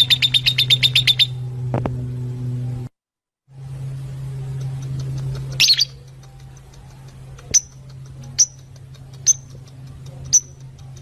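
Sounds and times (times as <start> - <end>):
low hum: 0.0 - 11.0
lovebirds chirping: 4.6 - 11.0.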